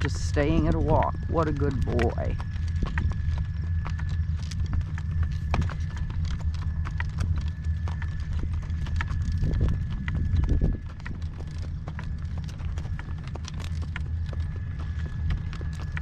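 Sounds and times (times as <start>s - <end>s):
horse hooves clopping: 0.0s - 16.0s
wind rumble on microphone: 0.0s - 16.0s.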